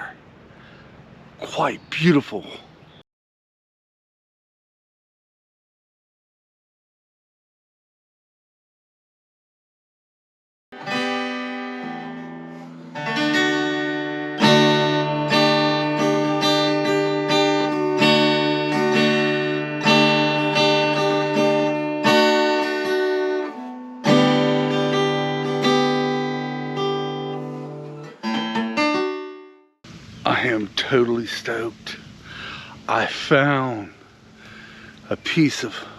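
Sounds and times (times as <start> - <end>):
acoustic guitar strumming and picking: 10.8 - 29.6.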